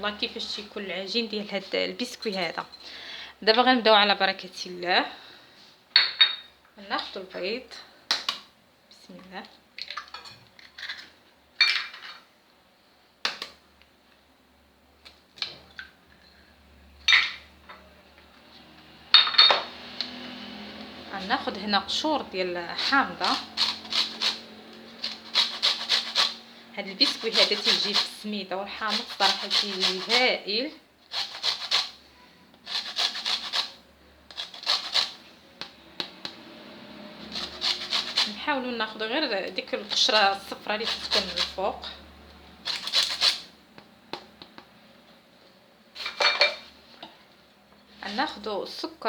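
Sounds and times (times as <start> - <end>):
lemon rasping on a grater: 21.2 - 30.4, 31.1 - 32.0, 32.6 - 35.2, 37.2 - 38.7, 39.8 - 41.7, 42.6 - 43.5.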